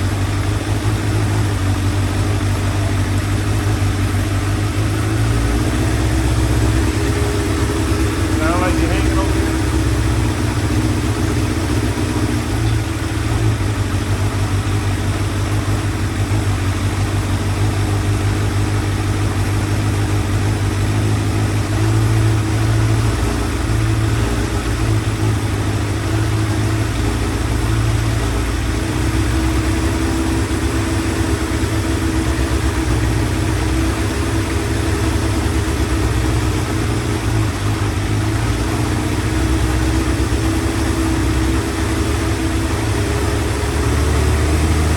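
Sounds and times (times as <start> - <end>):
motorcycle engine idling: 0.0 - 44.9.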